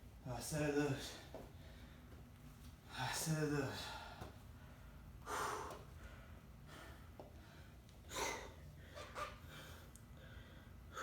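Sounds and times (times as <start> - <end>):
person breathing hard: 3.8 - 11.0.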